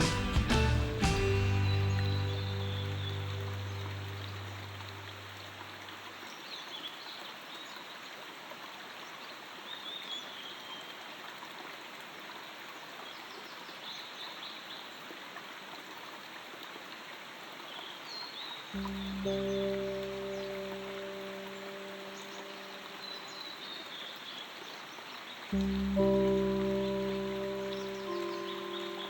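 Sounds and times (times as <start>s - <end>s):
bird chirps: 0.0s - 5.0s, 25.6s - 29.0s
low music notes: 0.0s - 5.8s, 18.8s - 23.3s, 25.5s - 29.0s
rushing stream water: 0.0s - 29.0s.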